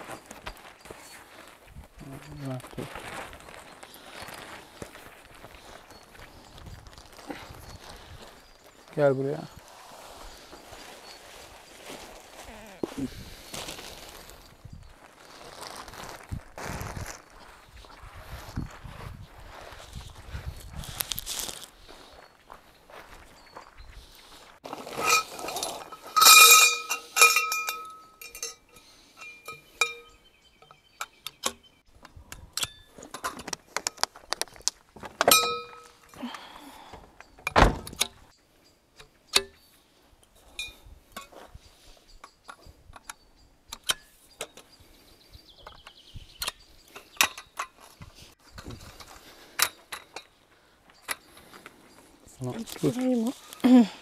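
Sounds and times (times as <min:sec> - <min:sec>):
metal items clinking: 0:24.6 - 0:30.1.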